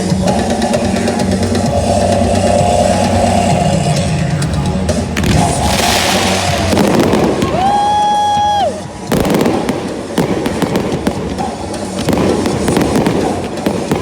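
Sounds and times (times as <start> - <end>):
whistle-like pitched tone: 0.0 - 8.8
fireworks bangs and crackles: 4.9 - 14.0.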